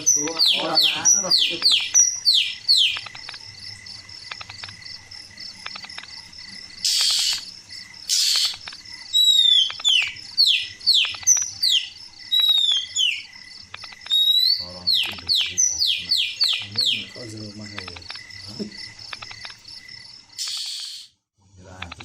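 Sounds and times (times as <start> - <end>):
cricket trill: 0.0 - 22.0
bird singing whistles: 8.1 - 13.2, 14.1 - 17.1, 20.4 - 21.1.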